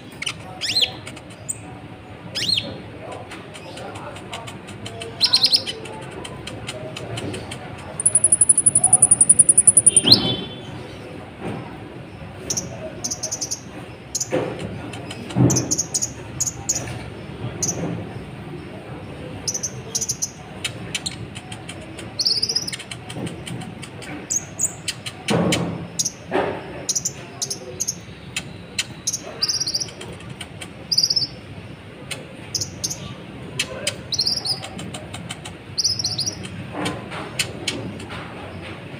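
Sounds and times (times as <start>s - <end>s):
bird trilling: 8.0s - 10.6s
sharp high bird chirps: 8.0s - 10.6s.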